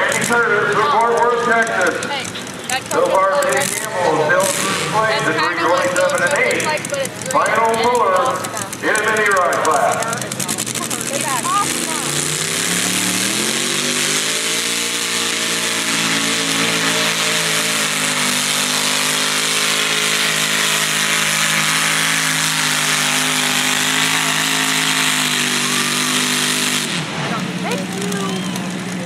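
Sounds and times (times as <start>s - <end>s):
tractor engine at full throttle: 0.0s - 29.0s.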